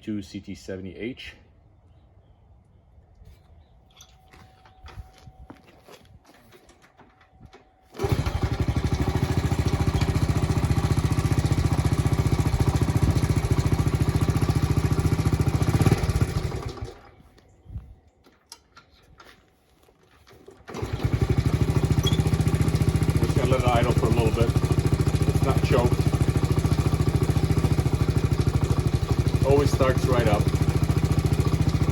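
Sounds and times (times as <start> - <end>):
small motorcycle engine running: 8.0 - 17.2, 20.6 - 31.9.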